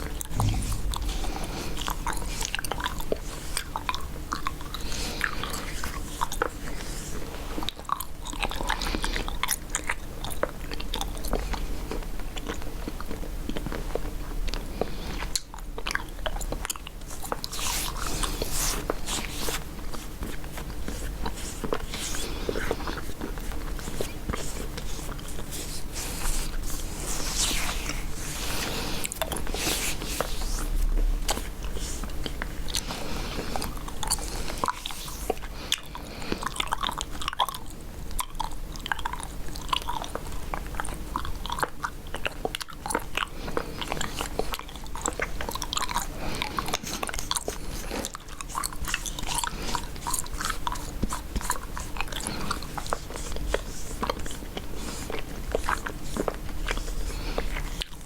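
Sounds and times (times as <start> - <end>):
gum chewing wet smacks: 0.0 - 58.0.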